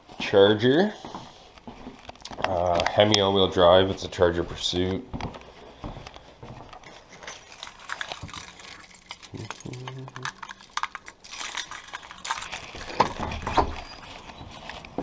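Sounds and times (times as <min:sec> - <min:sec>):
handling clicks and knocks: 0:04.7 - 0:15.0
keys jangling: 0:06.7 - 0:15.0.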